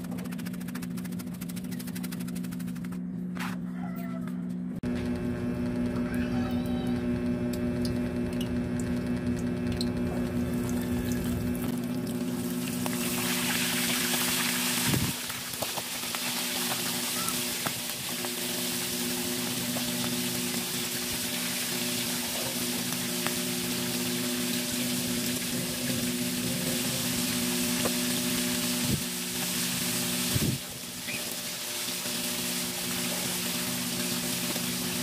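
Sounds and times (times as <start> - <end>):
low hum: 0.0 - 35.0
food deep-frying in oil: 7.5 - 35.0.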